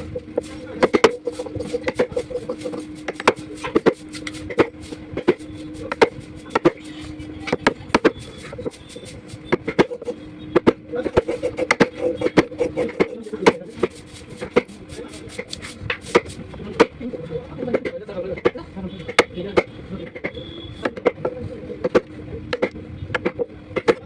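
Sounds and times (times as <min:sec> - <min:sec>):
low hum: 0:00.0 - 0:15.9
tool knocking on wood: 0:00.2 - 0:06.9, 0:07.5 - 0:14.8.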